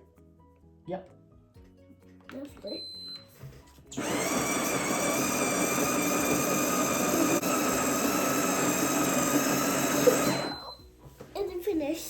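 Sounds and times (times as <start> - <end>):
burr grinder grinding coffee beans: 3.9 - 10.8.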